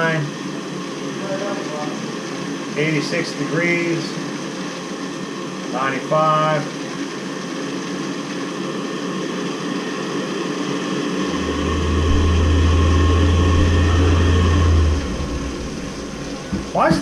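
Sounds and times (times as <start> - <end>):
water heater burner rushing: 0.0 - 17.0
deep low hum: 11.0 - 17.0.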